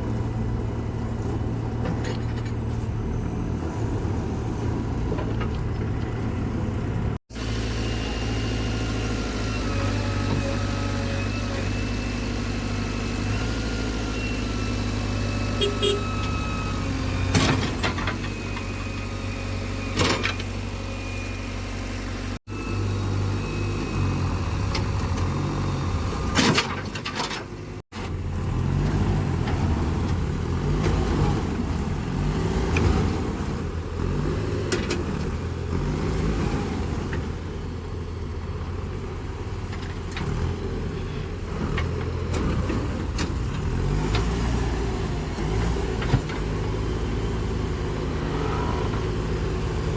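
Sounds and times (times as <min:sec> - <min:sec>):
diesel machinery droning: 0:00.0 - 0:49.9
engine revving up and down: 0:28.2 - 0:37.4, 0:40.2 - 0:49.9.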